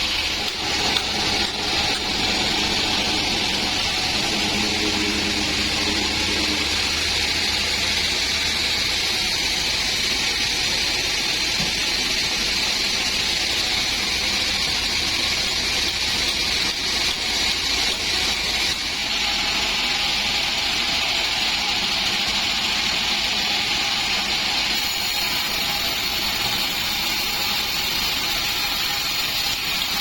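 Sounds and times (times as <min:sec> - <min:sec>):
low machine hum: 0:00.0 - 0:20.4
bandsaw cutting a log: 0:00.0 - 0:30.0.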